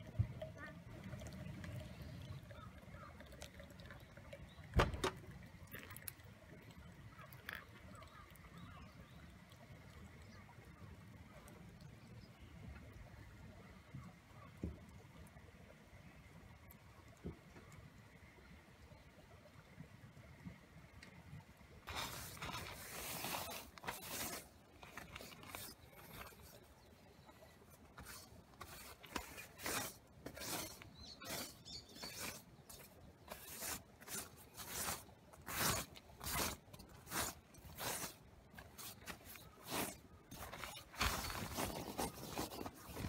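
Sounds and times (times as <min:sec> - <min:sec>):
short scraping strokes: 0:28.0 - 0:43.0.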